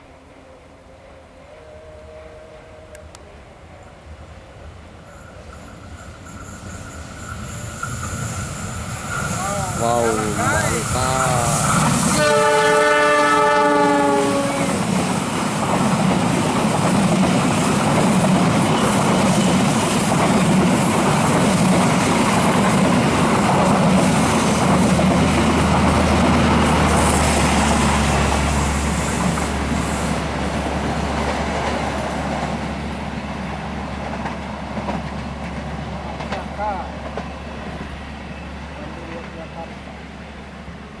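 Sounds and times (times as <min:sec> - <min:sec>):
train horn: 0:00.0 - 0:04.0, 0:09.6 - 0:14.9
train wheels rumbling and clattering: 0:05.1 - 0:13.2, 0:14.2 - 0:40.1.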